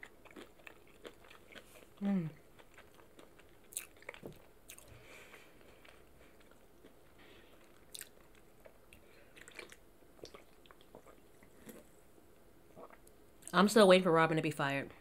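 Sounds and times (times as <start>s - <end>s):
person chewing and biting food: 0.0s - 11.9s.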